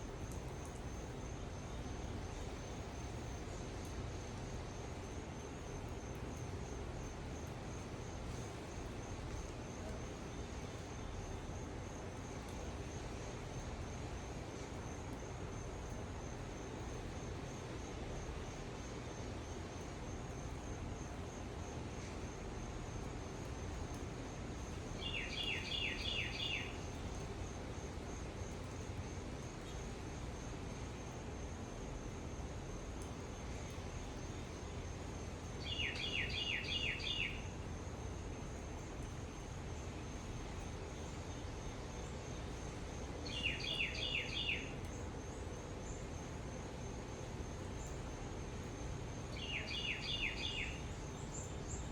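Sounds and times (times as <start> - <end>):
low outdoor hum: 0.0 - 51.9
songbird whistling: 35.7 - 37.4, 43.3 - 44.7, 49.4 - 50.8.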